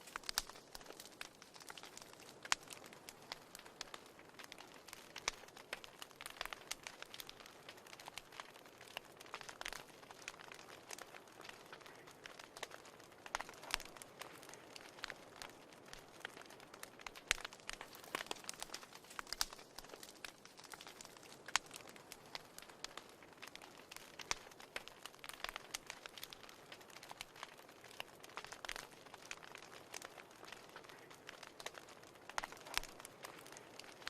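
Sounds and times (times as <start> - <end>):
wood fire crackling and popping: 0.0 - 34.0.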